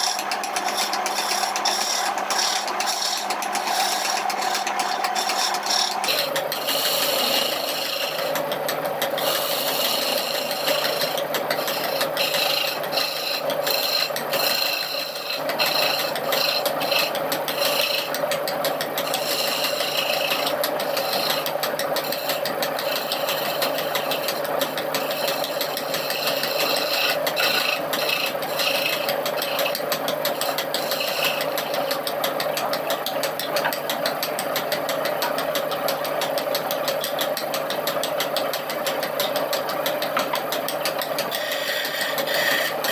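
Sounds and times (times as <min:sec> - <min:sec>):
rough scraping: 0:00.0 - 0:08.5, 0:09.2 - 0:18.2, 0:19.0 - 0:31.9, 0:40.1 - 0:42.9
power tool grinding wood: 0:00.0 - 0:42.9.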